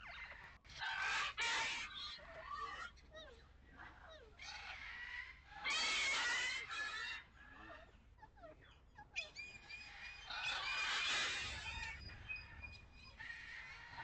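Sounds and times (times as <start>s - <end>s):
poultry calling loudly: 0.0s - 14.0s
faint bird chirps: 6.7s - 14.0s.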